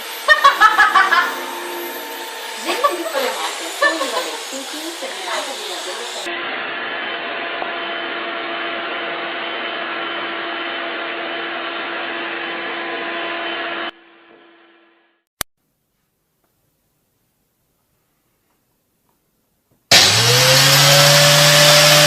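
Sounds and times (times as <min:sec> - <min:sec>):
vacuum motor winding down: 0:00.0 - 0:13.9, 0:19.9 - 0:22.0
vacuum cleaner running: 0:00.0 - 0:14.0, 0:19.9 - 0:22.0.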